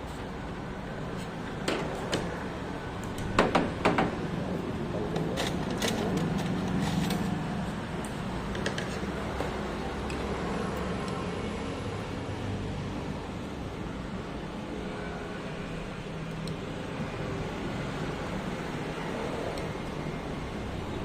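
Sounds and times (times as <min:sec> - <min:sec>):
sharp knocks and clatters: 0:03.2 - 0:04.2.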